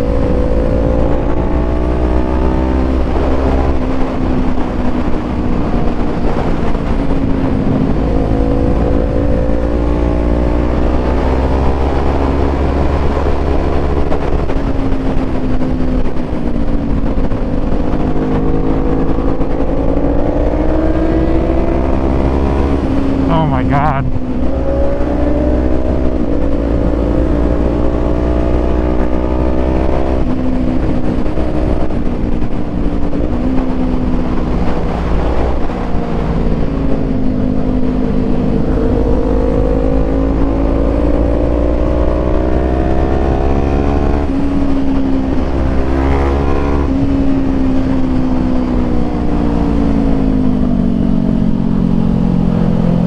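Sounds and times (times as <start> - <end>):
low wind rumble: 0.0 - 53.0
motorcycle engine revving: 17.0 - 23.3, 24.1 - 53.0.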